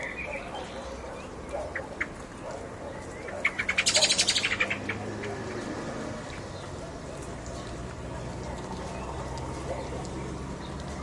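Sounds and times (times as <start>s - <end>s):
bird chirping and trilling: 0.0s - 2.2s, 2.9s - 5.6s
steady rain: 4.9s - 11.0s.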